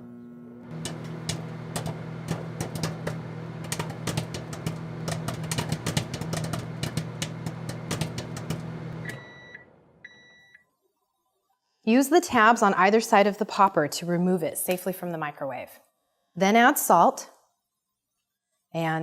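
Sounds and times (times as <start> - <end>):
microwave oven humming: 0.0 - 10.6
popcorn popping: 0.7 - 9.2
microwave beep: 6.7 - 10.6.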